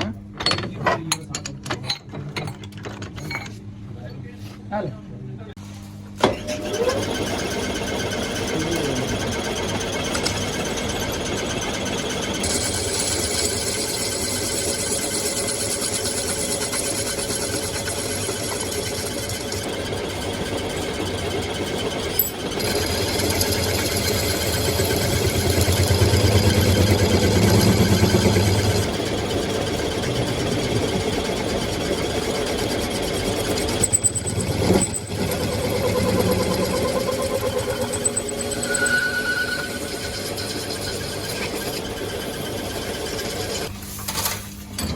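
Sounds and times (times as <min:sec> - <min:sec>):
electric motor whining: 0:22.6 - 0:31.1, 0:33.5 - 0:42.1.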